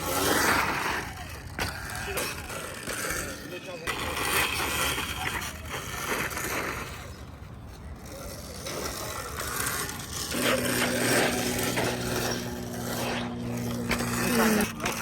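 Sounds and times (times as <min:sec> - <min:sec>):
electric motor hum: 0:09.9 - 0:15.0.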